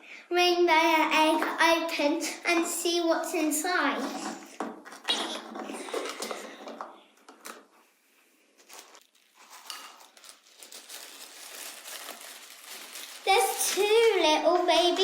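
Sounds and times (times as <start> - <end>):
plastic parts rustling: 4.0 - 7.7, 8.6 - 15.0.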